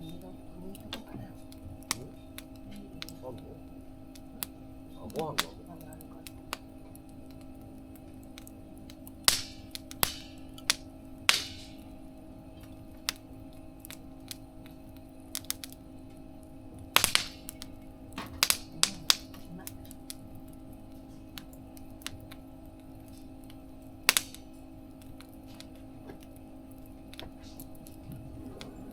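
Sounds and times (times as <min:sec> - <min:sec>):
campfire crackling and popping: 0:00.0 - 0:28.9
steady low hum: 0:00.0 - 0:28.9.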